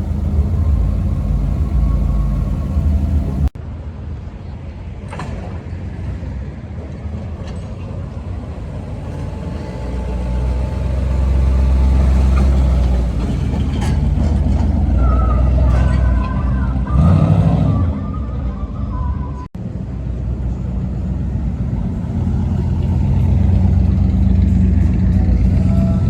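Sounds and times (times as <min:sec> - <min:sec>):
car engine exhaust rumble: 0:00.0 - 0:03.6, 0:07.9 - 0:16.1, 0:19.6 - 0:26.0.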